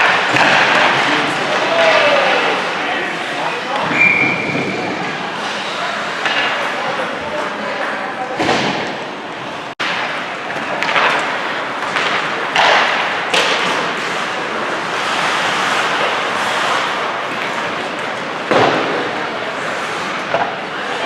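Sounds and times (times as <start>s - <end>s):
puck and sticks knocking: 0.0s - 1.9s, 9.8s - 14.0s.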